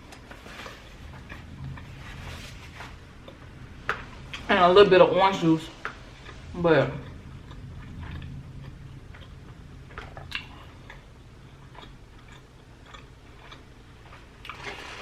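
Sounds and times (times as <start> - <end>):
faint low hum: 0.0 - 15.0
chewing mouth clicks and smacks: 7.0 - 14.8.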